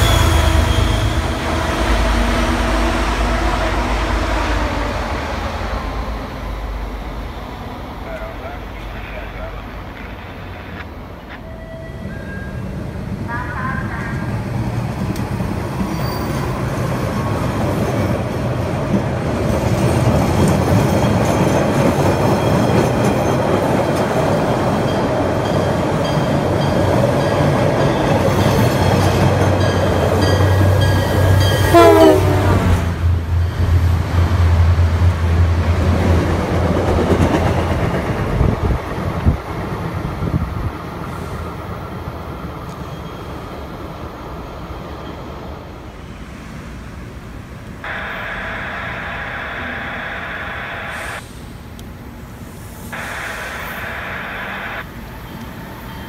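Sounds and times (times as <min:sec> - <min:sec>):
train wheels rumbling on rails: 0:00.0 - 0:48.1
train horn dropping in pitch: 0:31.6 - 0:32.8
diesel engine drone: 0:47.8 - 0:51.4, 0:53.0 - 0:54.9.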